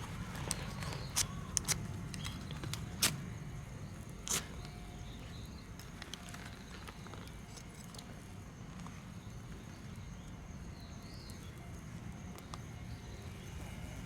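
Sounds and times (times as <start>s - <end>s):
sharp clicks and snaps: 0.4s - 3.2s.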